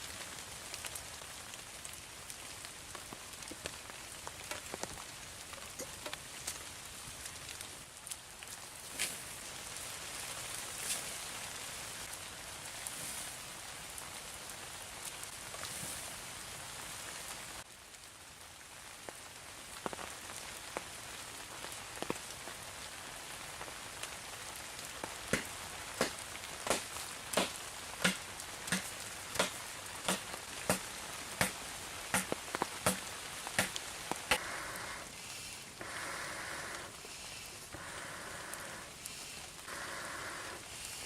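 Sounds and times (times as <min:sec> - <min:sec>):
rain-like hiss: 0:00.0 - 0:41.0
sharp evenly spaced knocks: 0:25.3 - 0:33.0, 0:33.6 - 0:34.4.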